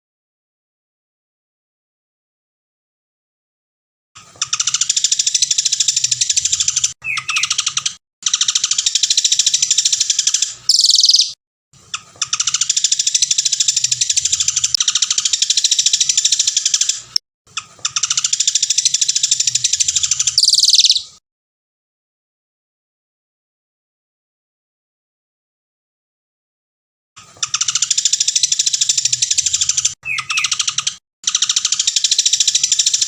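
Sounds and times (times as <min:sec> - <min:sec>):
songbird trilling: 0:04.5 - 0:10.1, 0:10.7 - 0:11.4, 0:17.9 - 0:21.2, 0:27.4 - 0:33.0.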